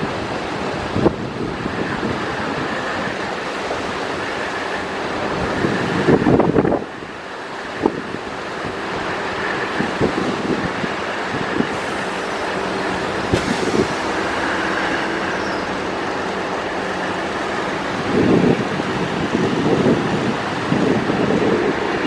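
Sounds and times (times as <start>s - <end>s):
train running rumble and hiss: 0.0s - 22.0s
wheels clanking over rail joints: 7.8s - 20.6s.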